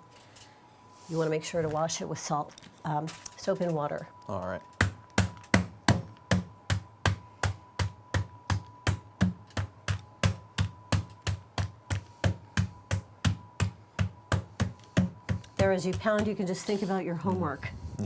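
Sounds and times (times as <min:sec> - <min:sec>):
meat pounder striking meat in bag: 0:04.8 - 0:16.5.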